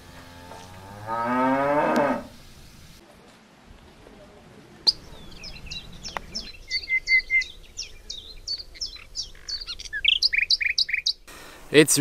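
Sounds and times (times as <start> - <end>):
songbird chirping: 4.4 - 11.3.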